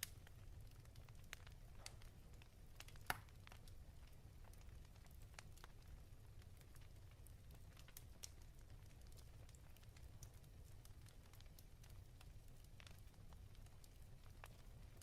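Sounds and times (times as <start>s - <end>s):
fireplace crackling: 0.0s - 15.0s.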